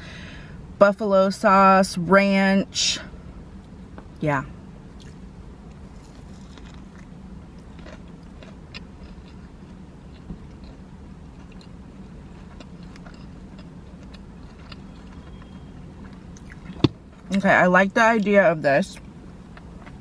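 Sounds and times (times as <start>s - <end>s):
steady low hum: 0.0s - 20.0s
biting and chewing food: 4.9s - 17.4s
wet chewing clicks: 5.0s - 11.8s, 12.4s - 16.9s.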